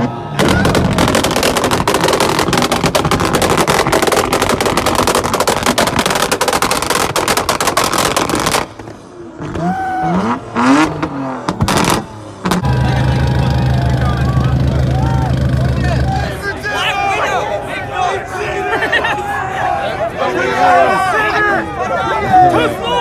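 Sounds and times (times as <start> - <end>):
exhaust pops and crackles: 0.4 - 9.6, 10.8 - 16.4
car engine revving: 10.2 - 17.4
voices calling out: 12.6 - 23.0.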